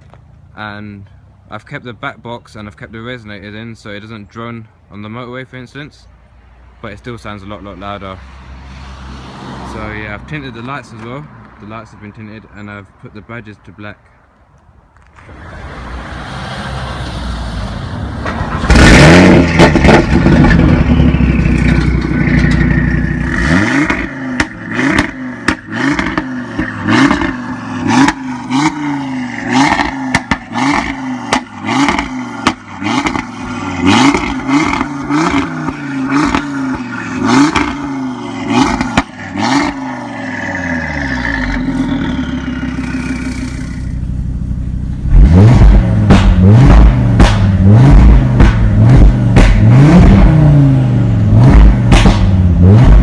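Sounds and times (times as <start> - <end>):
car engine revving: 15.2 - 53.0
exhaust cracks: 18.0 - 53.0.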